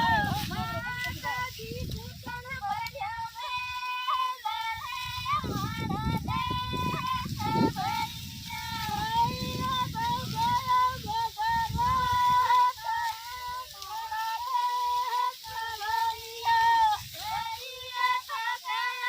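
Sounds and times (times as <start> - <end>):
women singing unaccompanied: 0.0 - 19.0.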